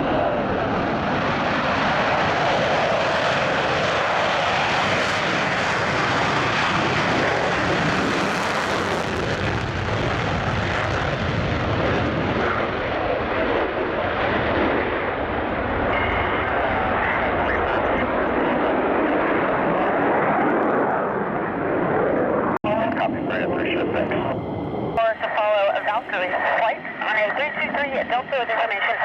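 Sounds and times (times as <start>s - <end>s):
jet engine roar: 0.0s - 29.0s.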